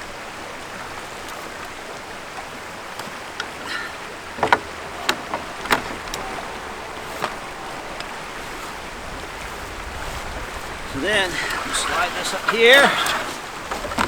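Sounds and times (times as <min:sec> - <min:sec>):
steady rushing noise: 0:03.2 - 0:14.0
sharp clicks and knocks: 0:04.4 - 0:06.4.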